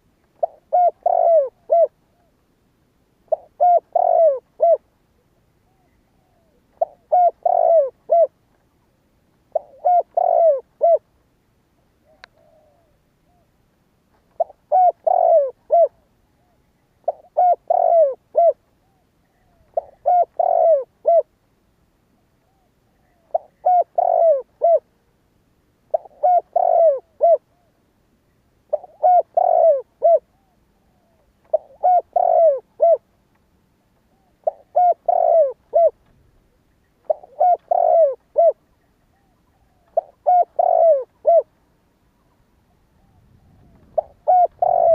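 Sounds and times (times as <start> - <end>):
dove cooing: 0.0 - 2.4, 3.2 - 8.4, 9.5 - 11.1, 11.9 - 13.5, 14.3 - 21.4, 22.4 - 25.1, 25.9 - 27.8, 28.6 - 33.2, 34.0 - 41.6, 42.2 - 44.9
faint click: 12.2 - 12.5, 33.2 - 34.1.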